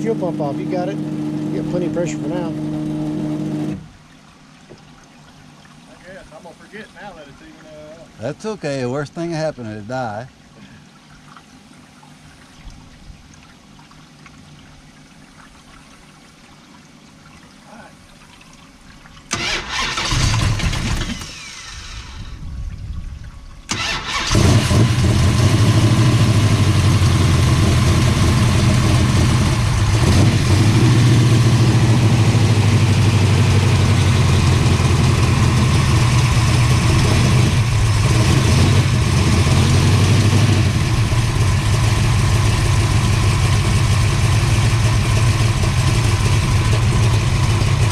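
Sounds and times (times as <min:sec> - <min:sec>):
loud engine running: 0:00.0 - 0:03.9, 0:23.7 - 0:47.9
engine cranking: 0:19.3 - 0:22.2, 0:23.7 - 0:30.7.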